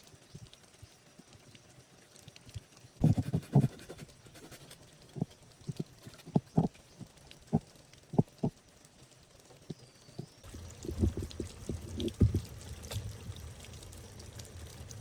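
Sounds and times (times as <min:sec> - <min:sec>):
dull knocks and taps: 0:11.0 - 0:12.5.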